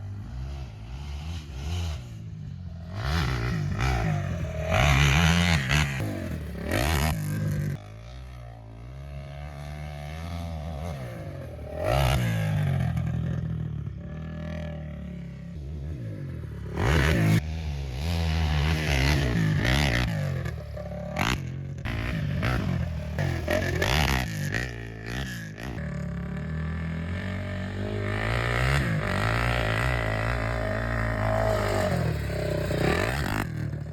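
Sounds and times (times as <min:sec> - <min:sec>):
quad engine revving: 0:00.0 - 0:33.9.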